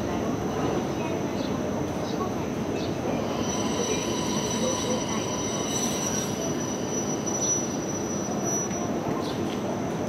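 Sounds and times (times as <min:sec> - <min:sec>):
train wheels squealing: 0:02.8 - 0:09.8.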